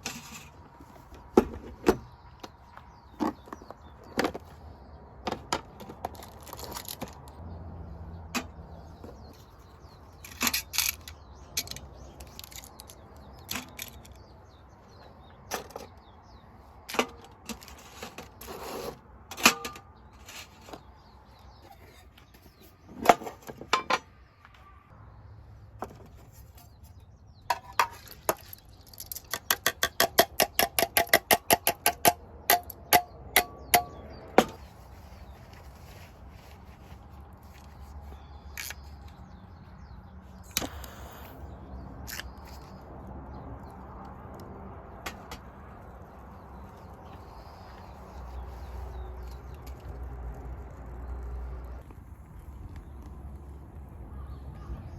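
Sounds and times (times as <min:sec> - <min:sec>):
metal parts clinking and knocking: 0:10.2 - 0:14.2, 0:27.5 - 0:34.6.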